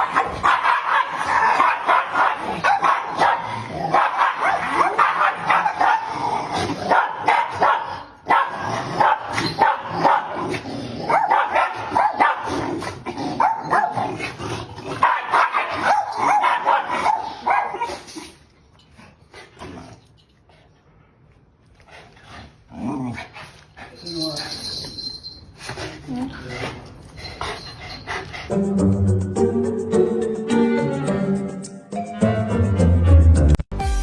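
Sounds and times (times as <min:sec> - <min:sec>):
dog barking and yipping: 0:00.0 - 0:06.2, 0:06.8 - 0:10.4, 0:11.1 - 0:12.7, 0:13.4 - 0:14.2, 0:15.0 - 0:18.1.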